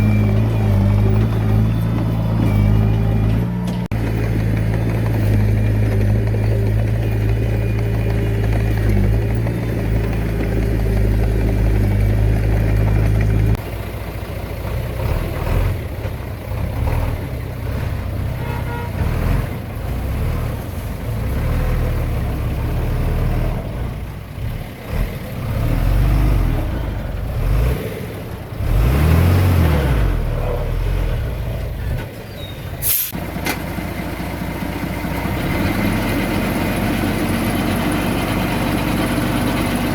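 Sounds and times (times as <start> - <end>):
diesel engines working: 0.0 - 39.9
short sharp hiss: 32.8 - 33.2.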